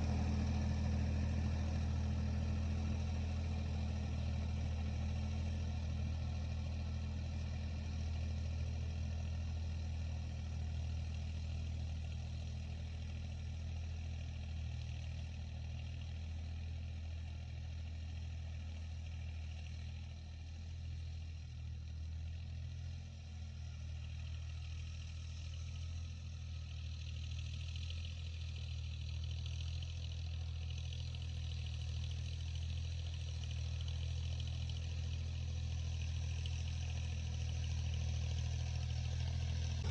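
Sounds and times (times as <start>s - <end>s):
tractor engine droning: 0.0s - 13.9s, 24.9s - 39.9s.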